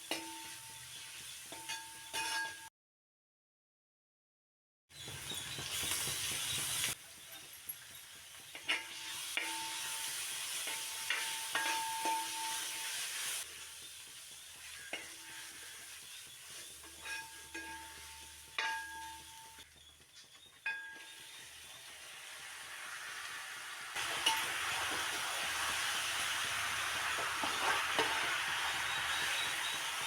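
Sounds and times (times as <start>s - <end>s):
food sizzling in a pan: 0.0s - 2.7s, 4.9s - 30.0s
metal spoon clinking on pan: 0.0s - 2.7s, 7.3s - 12.9s, 14.6s - 15.8s, 16.7s - 19.7s, 20.5s - 21.4s, 24.1s - 24.6s.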